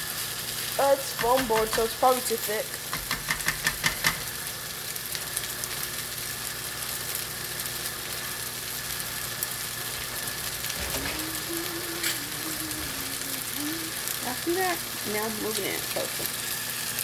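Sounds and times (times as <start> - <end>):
fried rice sizzling in a frying pan: 0.0 - 17.0.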